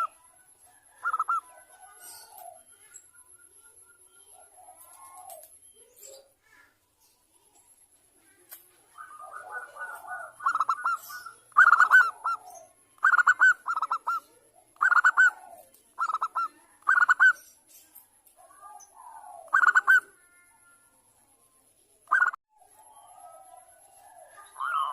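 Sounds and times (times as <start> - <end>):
dove cooing: 0.0 - 2.9, 4.2 - 5.6, 8.3 - 17.4, 18.4 - 20.4, 22.1 - 24.9.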